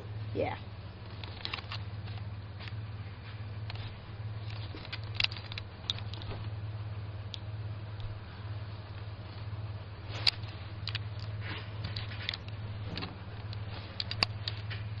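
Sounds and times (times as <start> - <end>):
low hum: 0.0 - 15.0
clicks and rattles of handling: 1.0 - 2.8, 3.6 - 6.5, 10.1 - 15.0.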